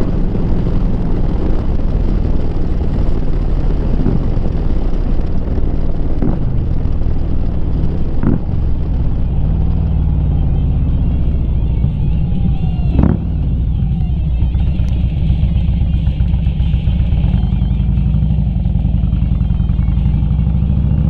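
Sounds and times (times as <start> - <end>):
motorcycle engine rumbling: 0.0 - 21.0
wind noise on microphone: 0.0 - 21.0.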